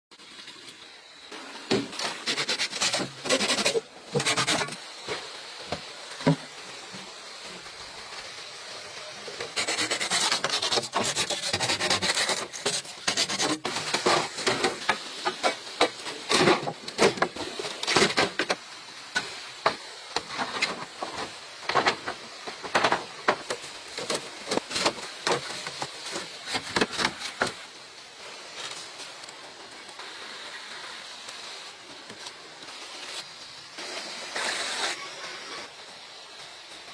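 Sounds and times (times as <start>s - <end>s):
bamboo scraping: 1.7s - 5.4s, 9.4s - 27.8s.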